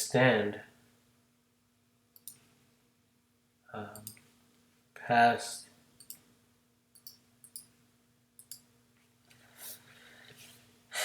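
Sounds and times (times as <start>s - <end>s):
computer mouse clicks: 2.2s - 2.4s, 4.0s - 4.3s, 6.0s - 6.2s, 7.0s - 7.7s, 8.4s - 8.7s
soft airy rustle: 9.0s - 10.8s.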